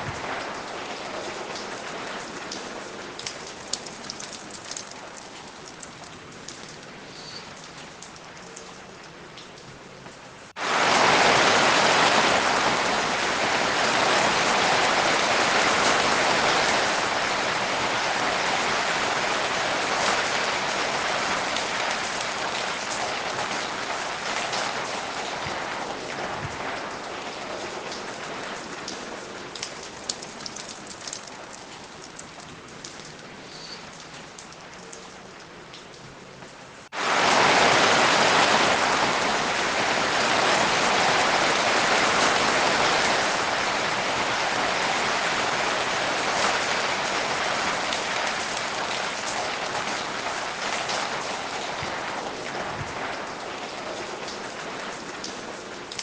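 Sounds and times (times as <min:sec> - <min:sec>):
water drips: 0:00.0 - 0:10.6, 0:21.8 - 0:37.0, 0:47.8 - 0:56.0
rain falling: 0:00.0 - 0:56.0.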